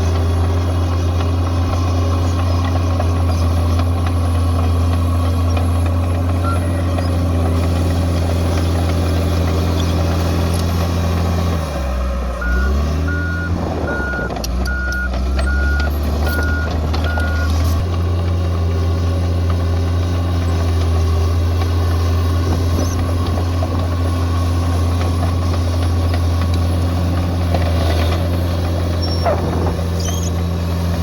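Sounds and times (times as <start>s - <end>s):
bulldozer diesel engine running: 0.0s - 31.0s
reversing alarm beeps: 6.4s - 6.8s, 12.4s - 17.6s.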